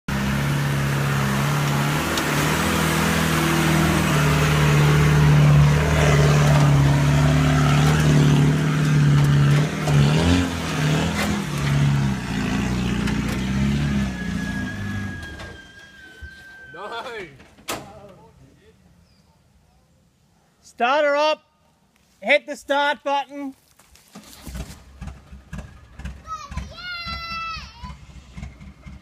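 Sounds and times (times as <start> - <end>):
truck engine revving under load: 0.1 - 16.1, 24.2 - 29.0.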